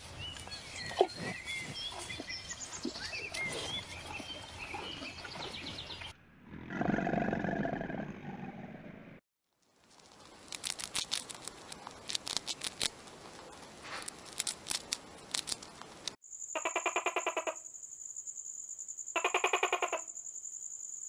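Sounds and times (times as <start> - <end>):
high-pitched insect whine: 16.2 - 21.0
rapid trilling insect calls: 16.2 - 21.0.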